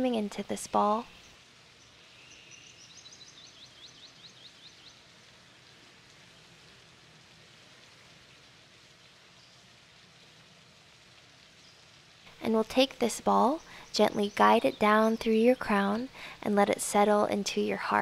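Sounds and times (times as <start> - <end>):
outdoor background hiss: 0.0 - 18.0
bird chirping: 0.3 - 5.0, 12.9 - 16.4.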